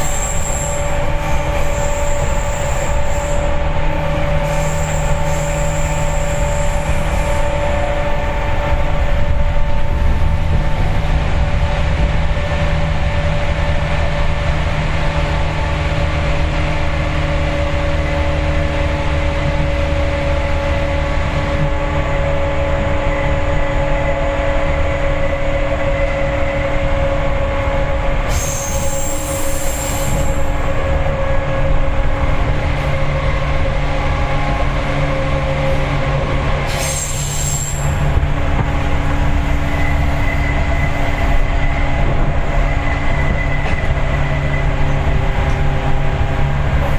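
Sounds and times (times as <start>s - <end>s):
high-pitched squeal: 0.0s - 10.0s, 28.3s - 31.2s, 36.6s - 38.2s
electric train humming whine: 0.0s - 46.9s
train wheels rumbling on rail: 0.0s - 46.9s.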